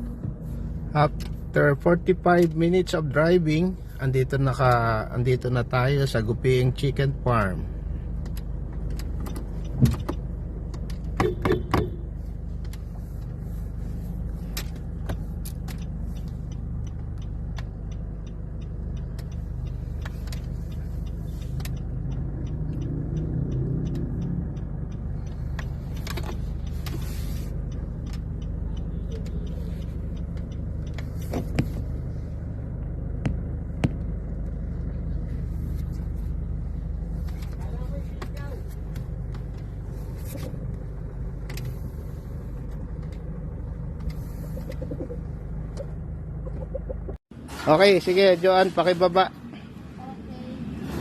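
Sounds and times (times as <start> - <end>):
car engine running: 0.0 - 51.0
sharp clicks and knocks: 8.2 - 13.4, 14.4 - 32.0, 33.1 - 34.6.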